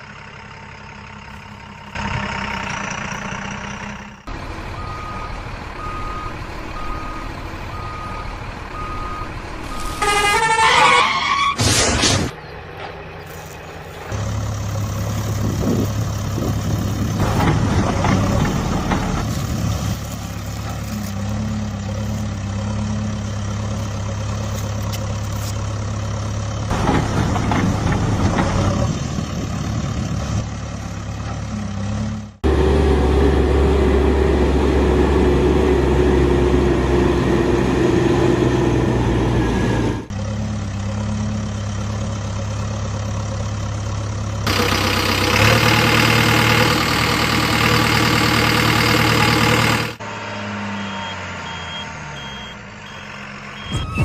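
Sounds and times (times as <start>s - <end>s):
heavy vehicle engine running: 0.0s - 54.0s
truck reversing beeps: 1.0s - 11.6s, 44.5s - 54.0s
rising horn blare: 9.6s - 11.6s.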